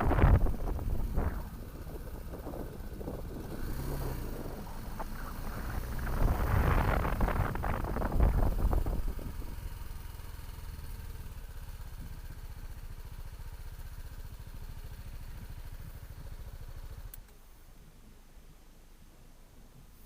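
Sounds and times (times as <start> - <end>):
motorcycle engine pulling away: 0.0 - 17.1
click: 17.1 - 17.4.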